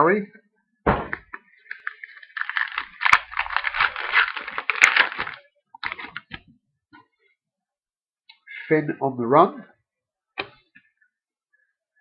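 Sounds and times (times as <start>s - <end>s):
cards being handled: 1.3s - 6.4s
wrapper tearing and crinkling: 1.6s - 6.3s.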